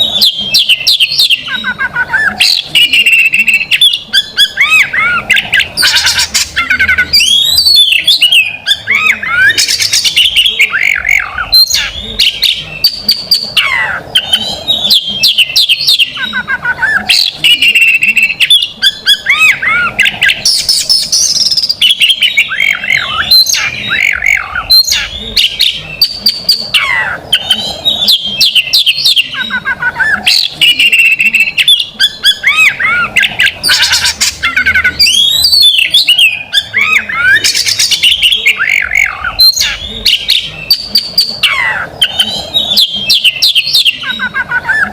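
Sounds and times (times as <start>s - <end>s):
songbird singing loudly: 0.0s - 44.9s.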